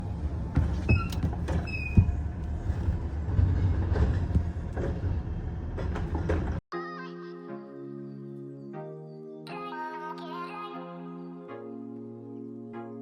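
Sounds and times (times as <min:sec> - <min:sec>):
garbage truck engine rumble: 0:00.0 - 0:06.6
clanks and knocks: 0:00.4 - 0:06.6
high squeal: 0:00.8 - 0:02.3
music: 0:06.7 - 0:13.0.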